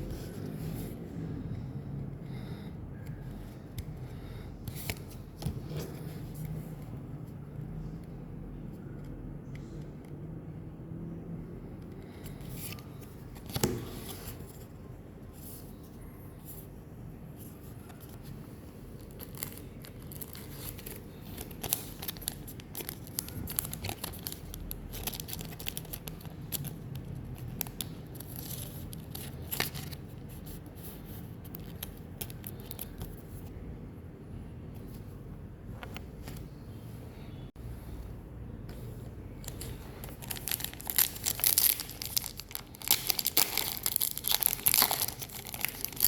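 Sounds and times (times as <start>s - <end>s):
cards rustling and snapping: 12.0s - 14.5s, 19.0s - 30.2s, 39.4s - 46.0s
foil wrapper crinkling and tearing: 19.0s - 29.9s, 40.0s - 46.0s.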